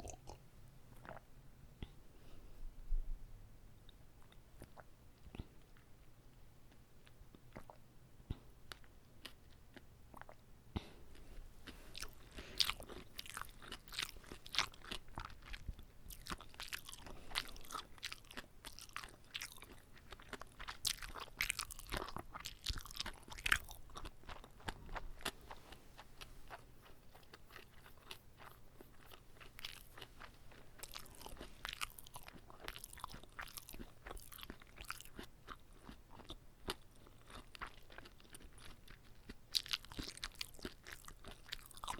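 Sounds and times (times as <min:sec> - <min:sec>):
wet crunchy chewing: 0:11.2 - 0:41.9.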